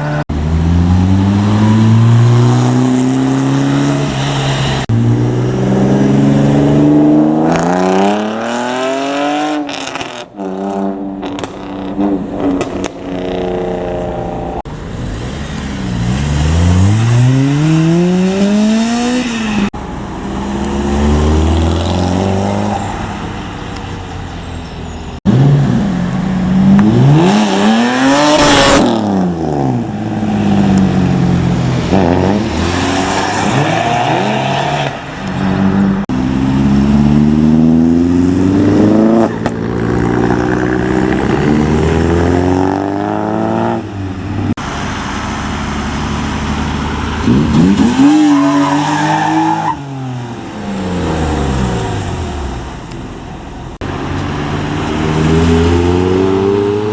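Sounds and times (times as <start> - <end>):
car engines accelerating: 0.0 - 56.9
car passing close: 25.2 - 56.9.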